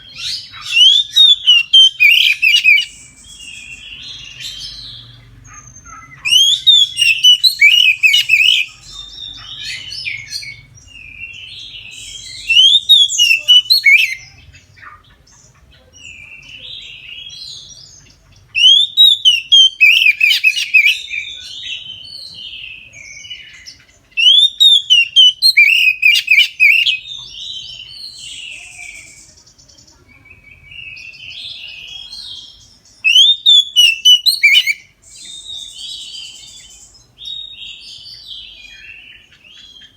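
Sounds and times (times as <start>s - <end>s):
bird singing chirps and whistles: 0.0s - 14.5s, 16.0s - 39.9s
bird warbling: 33.1s - 34.9s.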